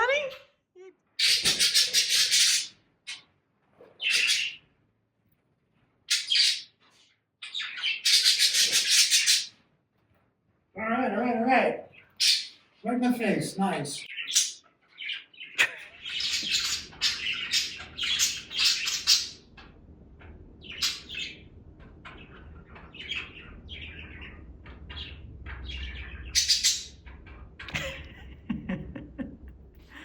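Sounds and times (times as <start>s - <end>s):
budgerigars chirping and squawking: 1.2s - 3.2s, 3.8s - 4.6s, 6.1s - 9.6s, 11.9s - 28.1s.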